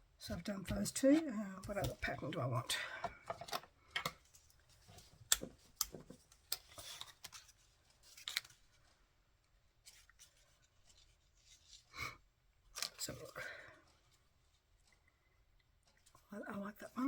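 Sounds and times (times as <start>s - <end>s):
paper and card rustling: 4.2s - 9.0s, 9.8s - 11.9s.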